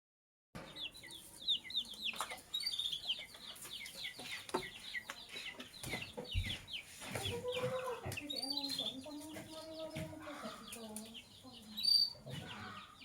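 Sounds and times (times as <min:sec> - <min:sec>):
lovebirds chirping: 0:00.6 - 0:13.0.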